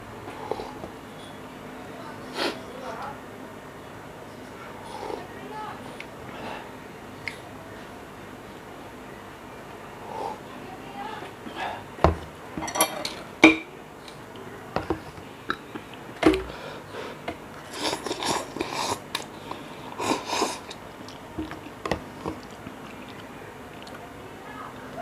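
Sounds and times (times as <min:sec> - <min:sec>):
mouth sounds of eating: 0:15.4 - 0:25.0.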